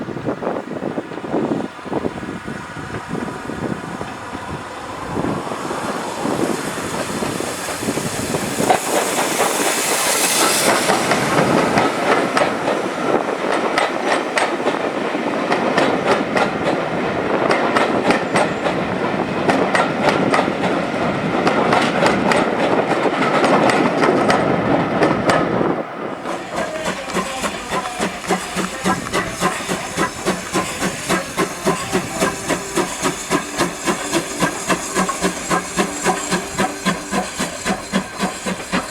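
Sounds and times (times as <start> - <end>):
steam locomotive exhaust chuffs: 0.1 - 38.9
train wheels clicking over rail joints: 0.5 - 38.9
steam hissing: 1.3 - 13.6, 26.2 - 38.9.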